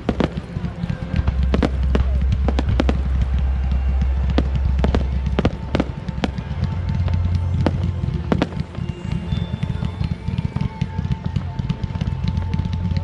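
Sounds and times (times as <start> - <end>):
fireworks banging: 0.0 - 13.0
music playing: 0.0 - 13.0.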